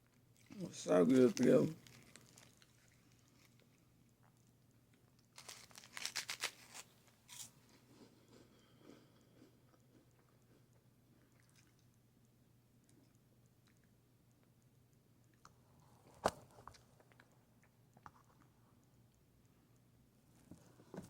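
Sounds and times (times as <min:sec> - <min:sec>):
crunching snack: 0:01.1 - 0:03.6, 0:05.3 - 0:10.6.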